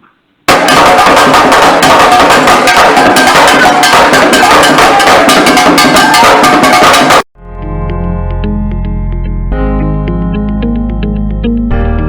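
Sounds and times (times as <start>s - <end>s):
music with fast drum beat: 0.5s - 7.3s
quiet music with bass and plucked tones: 7.4s - 12.0s.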